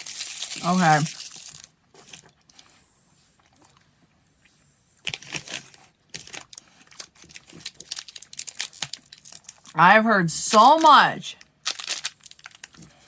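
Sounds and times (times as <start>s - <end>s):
snack wrapper crinkling: 0.0s - 2.7s, 5.0s - 9.8s, 10.6s - 13.0s.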